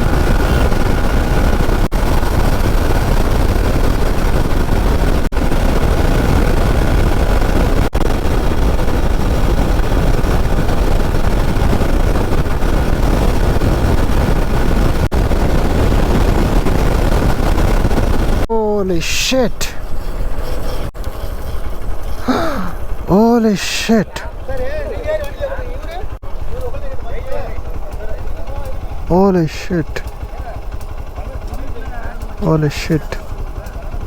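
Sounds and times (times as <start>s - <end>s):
motorcycle engine: 0.0s - 18.5s, 19.8s - 23.1s, 24.2s - 29.1s, 30.0s - 32.4s
wind and road noise: 0.0s - 18.5s
wind rumble on microphone: 0.0s - 18.5s.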